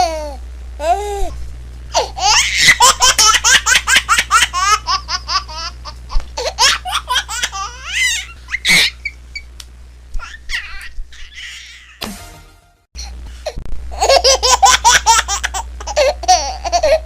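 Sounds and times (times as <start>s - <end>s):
baby laughing: 2.0s - 9.2s, 10.2s - 12.0s, 13.9s - 17.0s
baby squealing: 6.6s - 9.2s, 10.2s - 12.0s.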